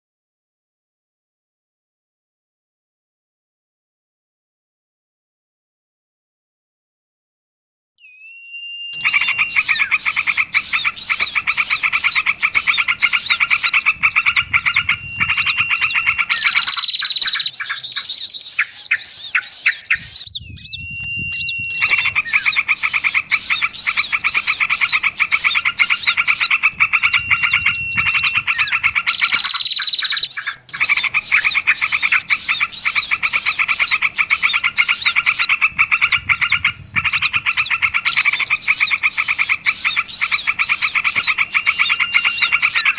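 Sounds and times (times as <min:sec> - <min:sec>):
held whistle note: 0:08.0 - 0:10.3
songbirds chirping and trilling: 0:08.0 - 0:42.9.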